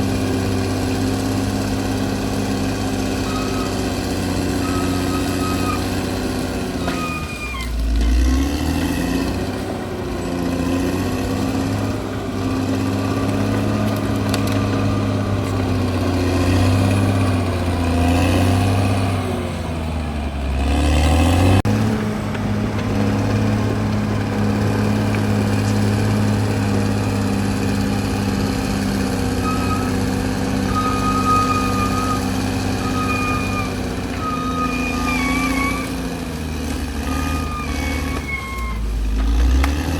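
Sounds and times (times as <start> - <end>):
bulldozer diesel engine: 0.0 - 39.9
thin high squeal: 3.1 - 3.9, 4.5 - 6.0, 6.8 - 7.8, 29.4 - 36.1, 37.0 - 39.0.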